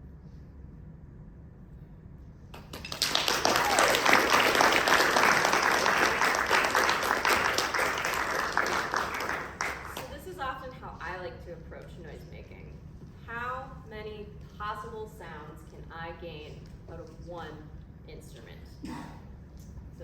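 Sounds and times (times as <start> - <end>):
audience applause: 2.6 - 10.1.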